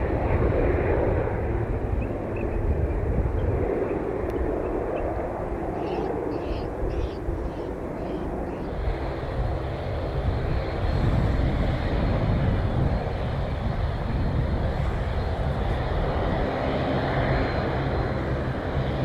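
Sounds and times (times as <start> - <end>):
airplane engines running: 0.0 - 19.0.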